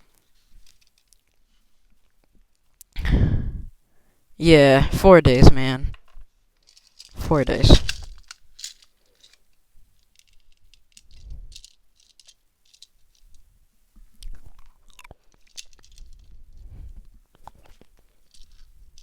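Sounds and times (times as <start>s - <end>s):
small clicks and crackles: 0.0s - 2.9s, 6.0s - 7.2s, 7.8s - 19.0s.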